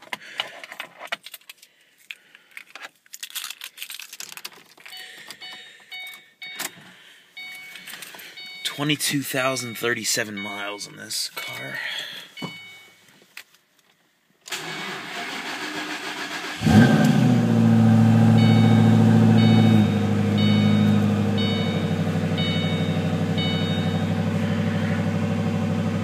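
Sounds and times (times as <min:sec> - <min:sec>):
electronic chime dinging: 0:08.4 - 0:11.8, 0:12.4 - 0:13.0, 0:18.3 - 0:24.9
car engine cranking and idling: 0:14.5 - 0:26.0.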